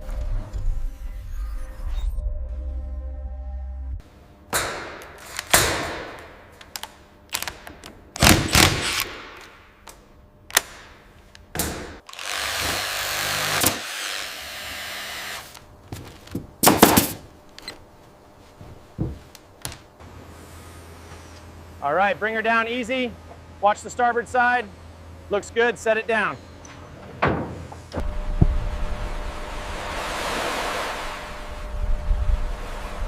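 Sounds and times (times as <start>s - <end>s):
construction knocks and thuds: 15.9s - 17.3s, 18.6s - 19.8s, 27.0s - 28.6s.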